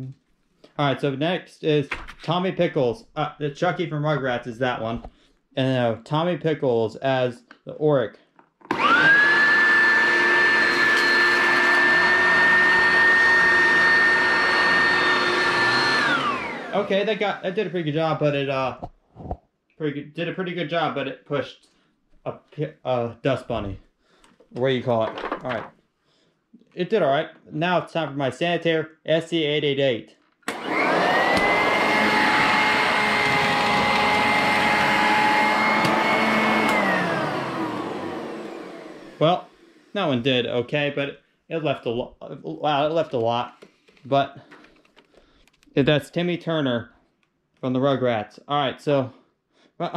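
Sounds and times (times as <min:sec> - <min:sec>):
vacuum cleaner running: 0:08.7 - 0:17.8, 0:30.5 - 0:40.2
vacuum cleaner switch click: 0:30.5 - 0:31.6, 0:35.6 - 0:36.9.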